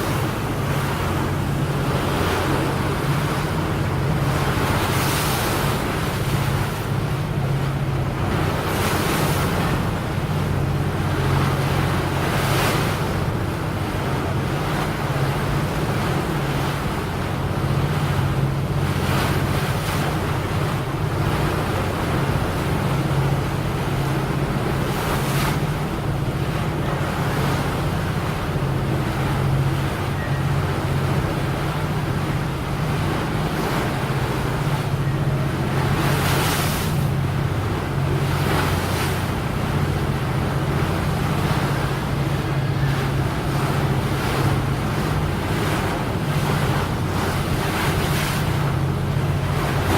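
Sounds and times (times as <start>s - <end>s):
boat engine running: 0.0s - 49.9s
rushing water: 0.0s - 49.9s.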